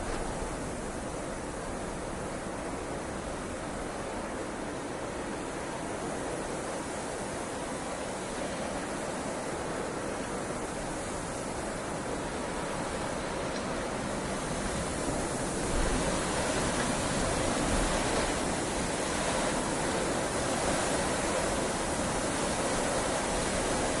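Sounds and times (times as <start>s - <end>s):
heavy rain falling: 9.6s - 24.0s.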